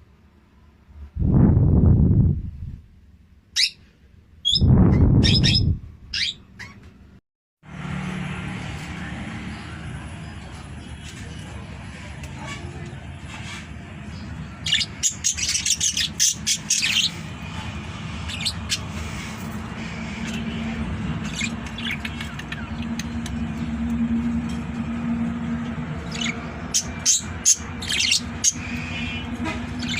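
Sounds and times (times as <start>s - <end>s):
parrot chirps and squawks: 3.5s - 3.8s, 4.4s - 6.9s, 14.6s - 17.3s, 18.0s - 23.1s, 26.0s - 29.9s
steady low hum: 7.8s - 29.9s.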